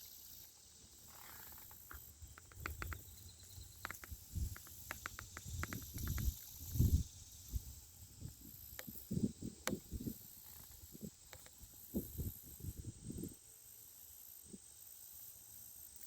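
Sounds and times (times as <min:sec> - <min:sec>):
insects buzzing: 0:00.0 - 0:16.0
sharp clicks: 0:03.8 - 0:06.4.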